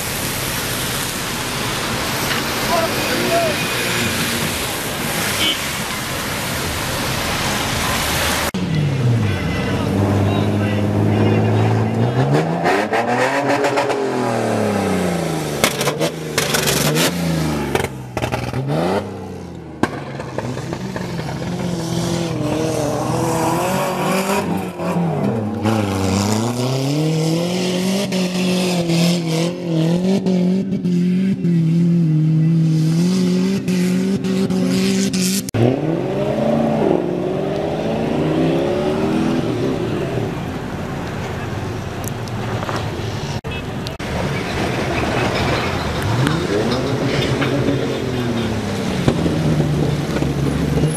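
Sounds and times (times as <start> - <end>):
vehicle engine revving hard: 9.0 - 19.5, 20.3 - 40.3.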